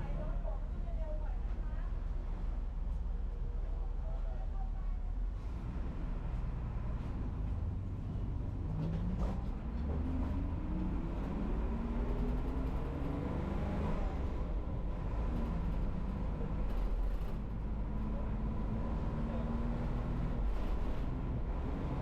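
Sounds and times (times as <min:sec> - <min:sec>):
road noise rumble: 0:00.0 - 0:22.0
bus engine running: 0:05.2 - 0:22.0.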